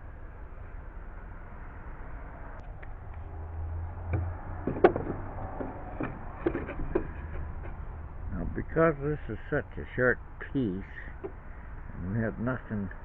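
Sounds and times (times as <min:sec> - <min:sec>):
low steady hum: 0:00.0 - 0:13.0
sharp knocks and clicks: 0:04.0 - 0:07.9, 0:11.2 - 0:11.4.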